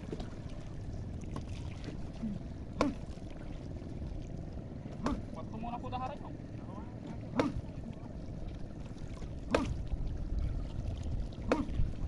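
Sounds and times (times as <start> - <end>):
water and wind noise: 0.0 - 12.0
short sharp splash: 9.5 - 9.9, 11.4 - 11.9.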